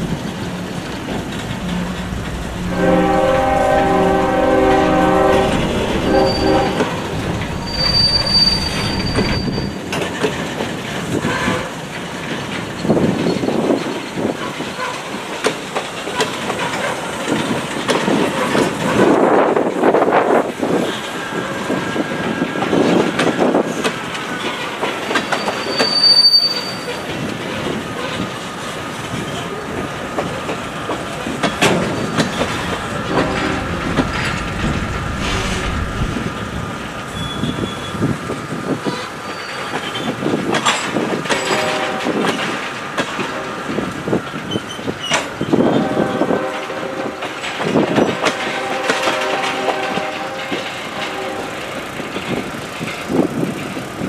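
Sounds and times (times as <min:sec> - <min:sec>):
steel wheel squeal: 0:01.2 - 0:10.0, 0:25.0 - 0:27.1, 0:31.4 - 0:38.3, 0:39.2 - 0:40.1.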